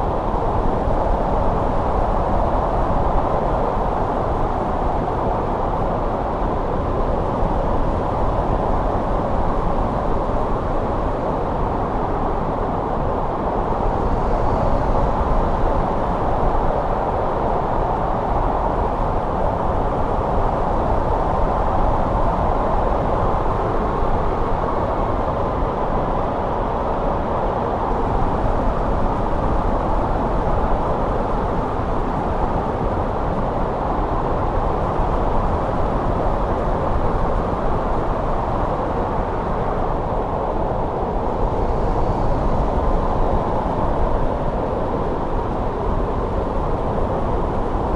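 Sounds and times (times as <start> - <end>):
snowstorm wind blowing: 0.0 - 47.9.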